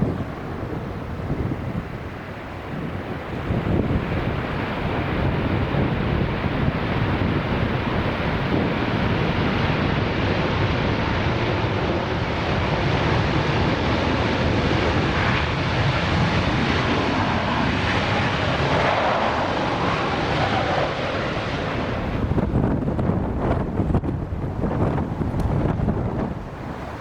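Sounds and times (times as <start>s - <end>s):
jet engines roaring: 0.0s - 27.0s
wind buffeting microphone: 0.0s - 27.0s.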